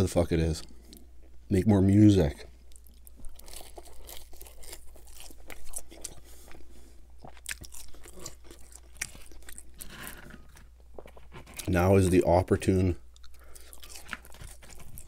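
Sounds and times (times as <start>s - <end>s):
chewing fries crunches: 2.7s - 12.2s, 12.8s - 15.0s.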